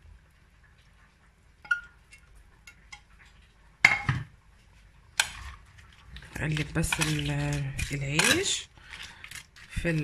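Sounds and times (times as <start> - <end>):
dishes clattering: 3.8 - 4.3.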